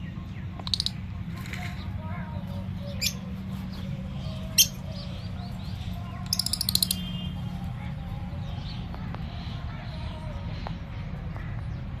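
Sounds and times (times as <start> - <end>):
rapid bird chirps: 0.0 - 2.0, 2.7 - 7.8
shrill bird call: 4.2 - 7.6.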